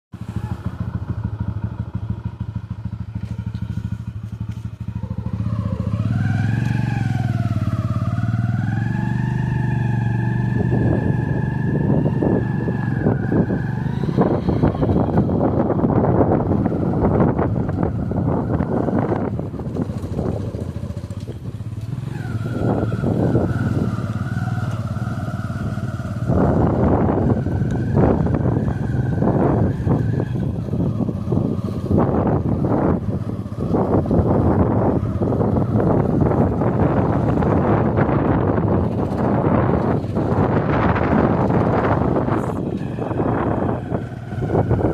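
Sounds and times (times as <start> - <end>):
engine running: 0.1 - 44.9.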